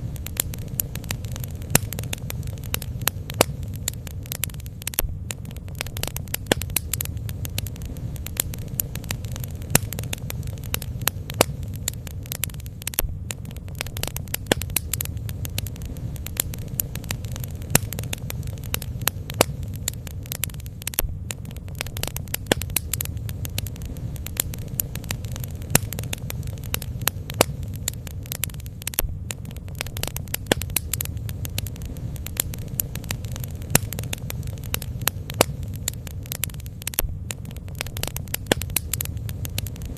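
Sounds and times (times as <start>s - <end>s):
steady low rumble: 0.0s - 39.9s
wood crackling and popping: 0.0s - 39.9s.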